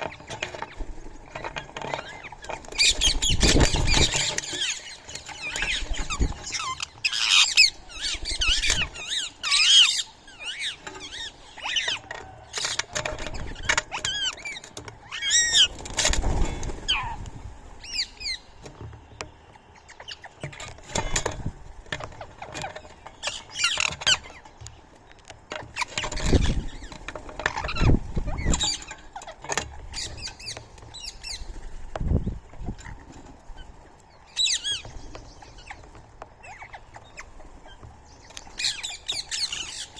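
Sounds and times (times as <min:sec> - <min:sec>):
small animals chirping and squeaking: 0:00.0 - 0:39.9.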